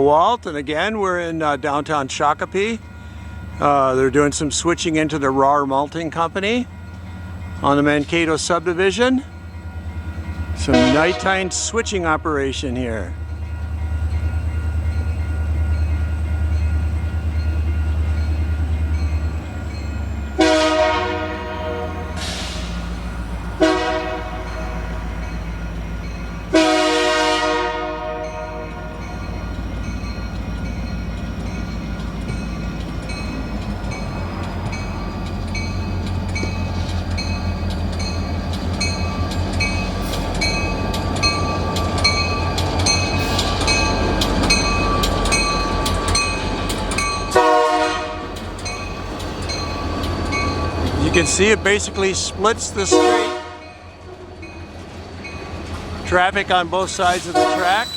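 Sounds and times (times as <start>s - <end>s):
diesel locomotive engine rumble: 0.0s - 57.9s
train air horn: 10.7s - 11.6s, 20.4s - 22.8s, 23.5s - 25.1s, 26.5s - 29.1s, 47.3s - 48.3s, 52.8s - 53.8s, 57.2s - 57.9s.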